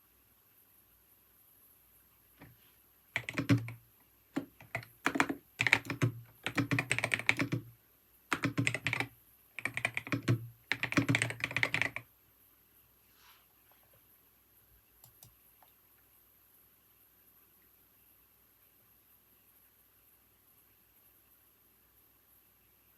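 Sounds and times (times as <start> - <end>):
typing on computer keyboard: 3.2 - 7.7, 8.3 - 12.1, 15.0 - 15.7.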